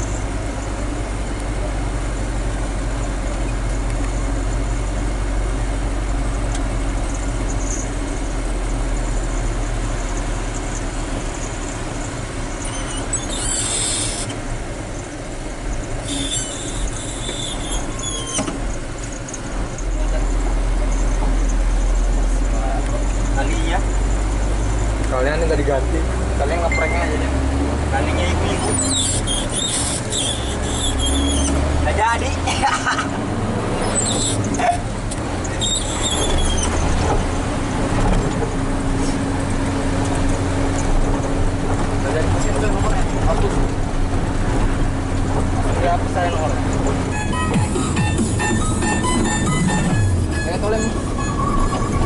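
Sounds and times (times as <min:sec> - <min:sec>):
truck engine and road rumble: 0:00.0 - 0:52.0
short high-pitched squeals: 0:12.5 - 0:14.4, 0:15.8 - 0:19.9, 0:28.4 - 0:31.7, 0:33.8 - 0:34.8, 0:35.4 - 0:37.0, 0:46.8 - 0:52.0.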